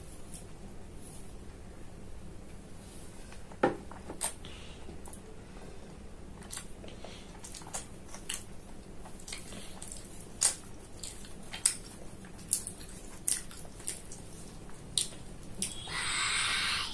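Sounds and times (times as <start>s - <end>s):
wet mouth clicks and smacks: 9.2s - 14.3s, 14.9s - 15.8s.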